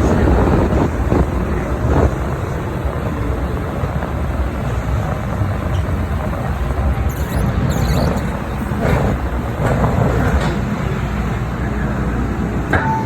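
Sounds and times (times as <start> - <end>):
train wheels and motors rumbling: 0.0 - 13.0
high screech: 7.1 - 8.8.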